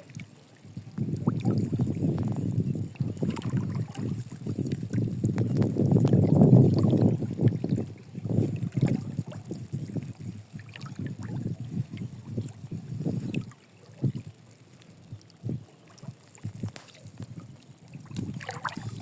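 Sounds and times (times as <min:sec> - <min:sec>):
fish splashing in water: 0:15.8 - 0:19.0.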